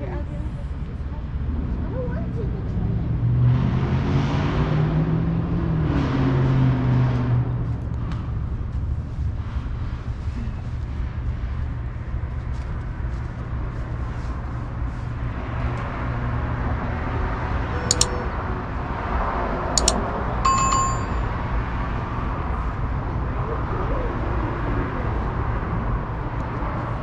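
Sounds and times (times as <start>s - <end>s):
metro train low rumble: 0.0s - 3.4s, 5.5s - 27.0s
sharp clicks: 17.9s - 18.2s, 19.8s - 21.1s
short bell ding: 17.9s - 18.2s, 19.8s - 21.4s.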